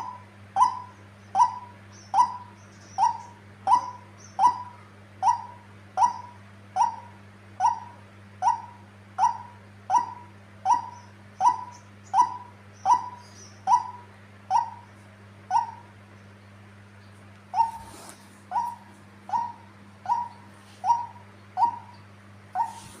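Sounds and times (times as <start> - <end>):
waterhen calling: 17.5 - 22.0.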